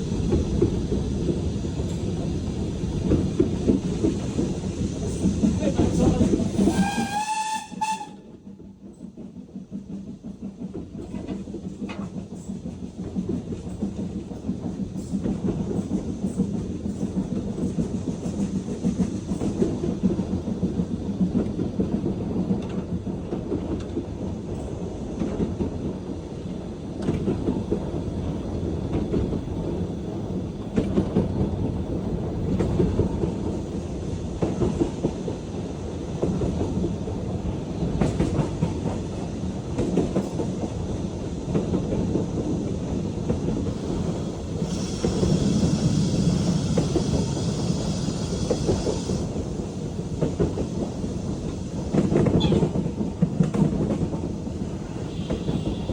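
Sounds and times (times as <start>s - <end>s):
train rumbling: 0.0s - 55.9s
wheels clacking on rails: 0.0s - 55.9s
steam locomotive whistle: 6.6s - 8.3s, 44.6s - 49.2s, 55.0s - 55.9s.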